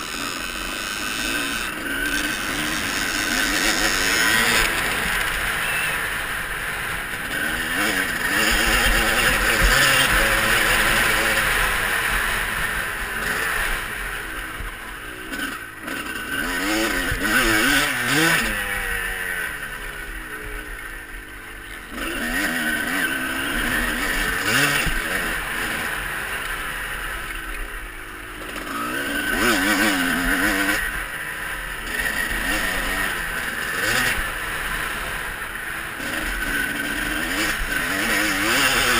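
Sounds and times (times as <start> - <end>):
motocross bike engines revving: 0.0 - 38.9.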